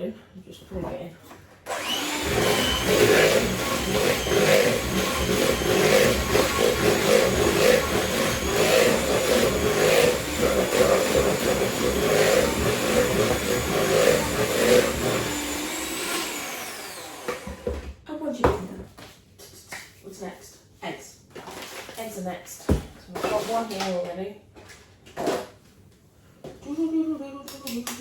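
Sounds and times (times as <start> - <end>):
electric mixer running: 1.7 - 17.8.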